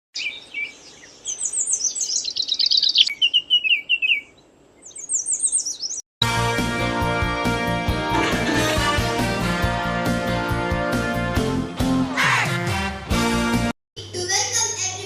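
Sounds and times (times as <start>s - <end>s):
songbird singing: 0.2s - 6.0s.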